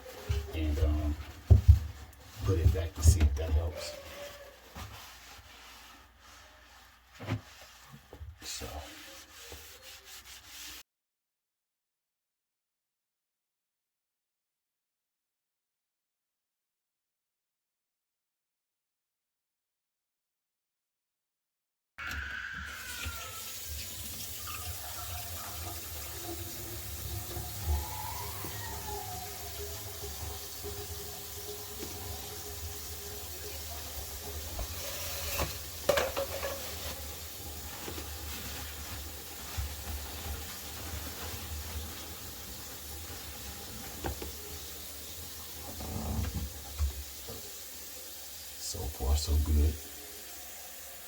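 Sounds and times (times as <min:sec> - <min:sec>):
water running into sink: 0:22.0 - 0:51.0.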